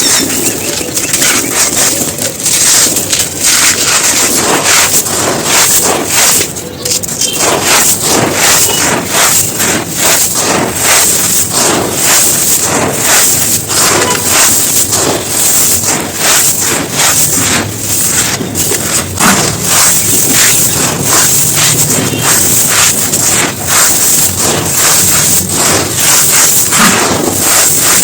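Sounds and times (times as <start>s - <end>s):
dried material crumbling: 0.0s - 28.0s.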